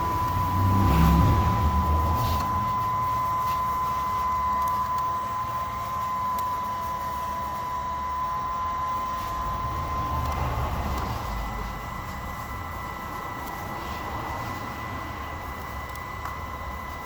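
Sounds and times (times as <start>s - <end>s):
small electric motor whine: 0.0s - 17.0s.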